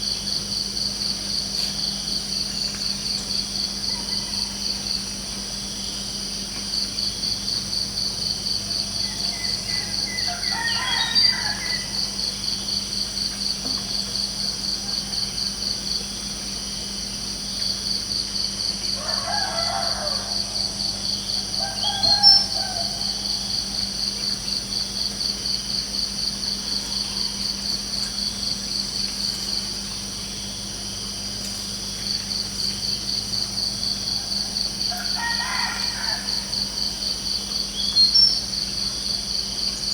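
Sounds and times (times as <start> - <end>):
crickets chirping: 0.0 - 39.9
rooster crowing: 9.0 - 12.3, 19.0 - 23.9, 34.1 - 37.0.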